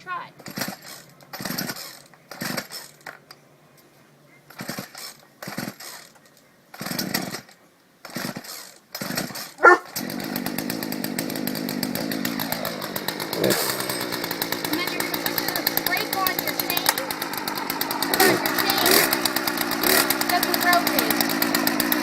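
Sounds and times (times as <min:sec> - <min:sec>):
chainsaw engine running: 0:00.4 - 0:03.2, 0:04.5 - 0:22.0
recoil starter cord tugs: 0:00.4 - 0:03.4, 0:04.5 - 0:22.0.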